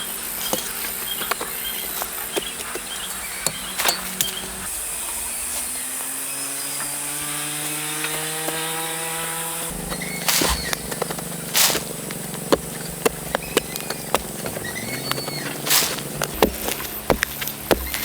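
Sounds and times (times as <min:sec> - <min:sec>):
chainsaw running: 0:00.0 - 0:18.0
sharp knocks: 0:09.7 - 0:18.0.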